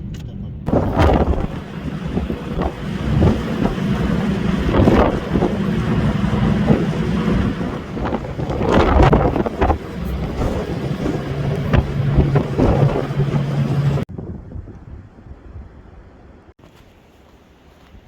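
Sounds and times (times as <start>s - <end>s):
low engine hum: 0.0s - 14.1s
wind buffeting microphone: 0.6s - 16.5s.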